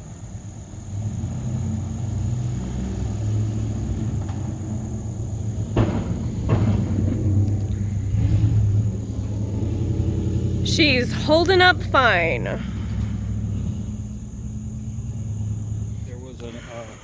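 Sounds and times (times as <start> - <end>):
vehicle engine running low: 0.0 - 17.0
clunks of bridge planks: 5.4 - 9.4.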